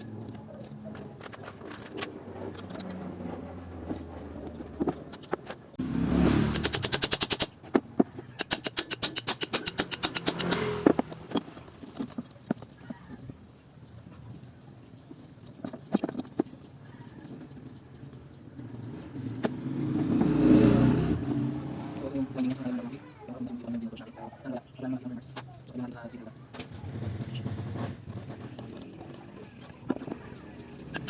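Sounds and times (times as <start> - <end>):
metal parts clinking: 6.5 - 11.6.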